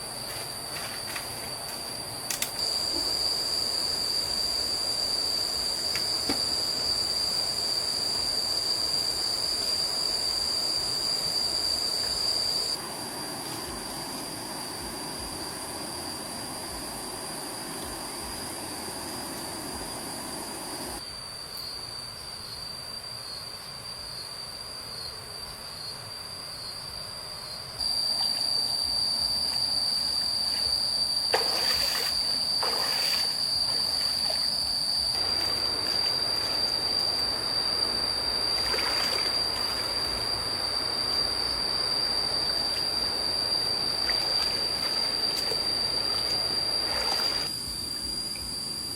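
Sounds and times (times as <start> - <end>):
high-pitched insect drone: 0.0 - 21.0, 27.5 - 48.9
stream trickling: 27.8 - 48.7.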